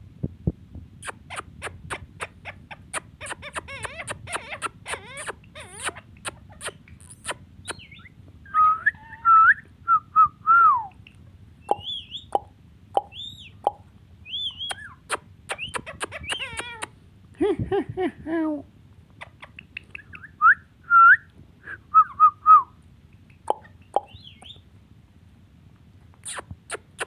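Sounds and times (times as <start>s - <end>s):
parakeet clicks and chatter: 1.0s - 8.0s, 11.0s - 13.8s, 14.6s - 16.9s
parakeet squeaky calls: 1.0s - 8.2s, 8.9s - 9.5s, 11.6s - 16.9s, 23.3s - 24.6s
parakeet gliding whistles: 6.6s - 10.4s, 11.6s - 12.4s, 14.2s - 16.7s.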